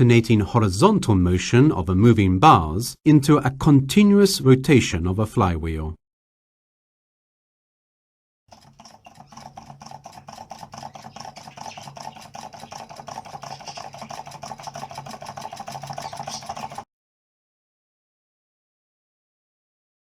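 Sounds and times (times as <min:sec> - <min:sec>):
electromagnetic motor clicking: 0:08.5 - 0:16.9.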